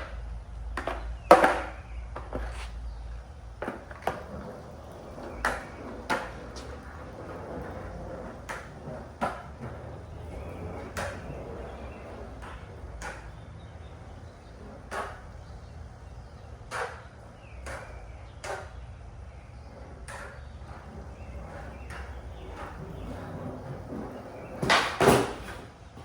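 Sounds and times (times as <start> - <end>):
skateboard clacking and knocking: 0.0 - 26.0.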